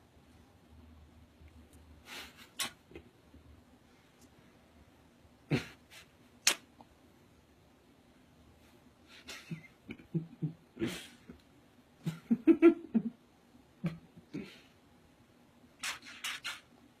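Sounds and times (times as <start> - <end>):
kissing smacks: 2.4 - 3.0, 6.4 - 6.9, 15.8 - 16.8.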